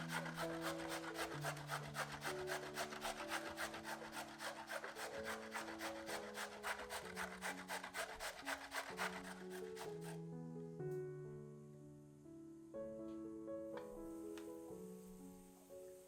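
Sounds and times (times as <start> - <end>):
fast scraping strokes on food: 0.0 - 10.2
soft background music: 0.0 - 16.0.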